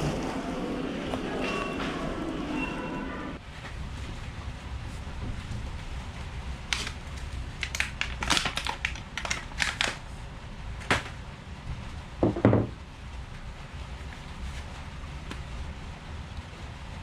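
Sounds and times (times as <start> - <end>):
dull thump: 12.2 - 12.8.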